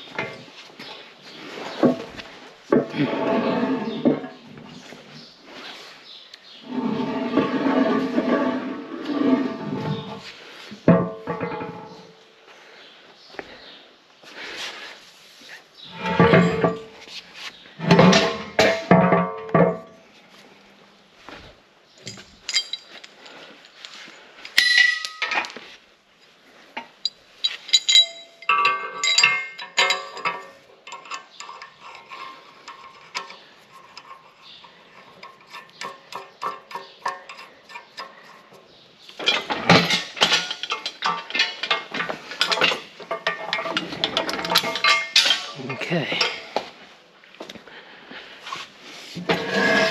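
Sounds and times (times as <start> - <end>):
metal parts and tools clanking: 0.0 - 0.9, 1.5 - 5.3, 6.6 - 12.2, 15.8 - 20.0, 22.0 - 25.6, 26.8 - 46.7, 49.2 - 49.9.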